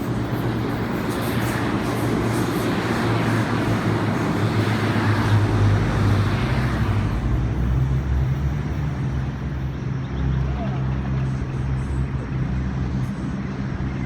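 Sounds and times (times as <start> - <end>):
diesel train engine hum: 0.0 - 14.0
train rushing rumble: 0.0 - 14.0.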